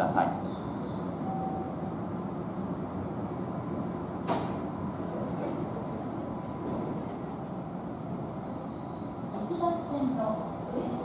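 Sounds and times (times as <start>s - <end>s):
train running noise: 0.0s - 11.0s
sharp door clunk: 4.2s - 4.7s.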